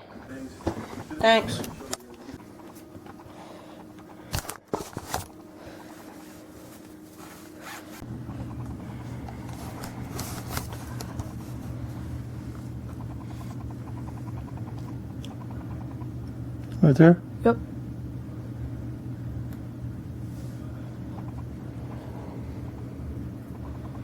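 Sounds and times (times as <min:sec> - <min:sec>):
steady low hum: 0:00.0 - 0:24.0
towel rubbing on surface: 0:04.8 - 0:13.6.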